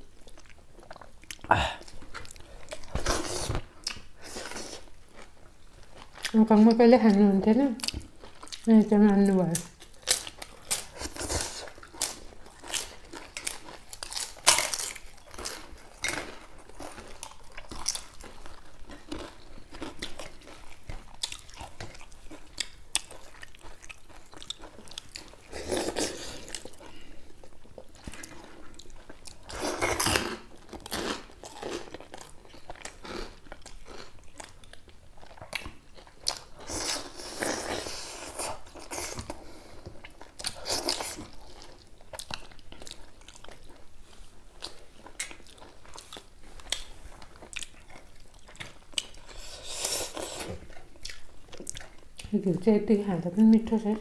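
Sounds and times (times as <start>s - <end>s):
people chewing and crunching: 0.0s - 52.7s
crackers crackling: 9.6s - 43.8s.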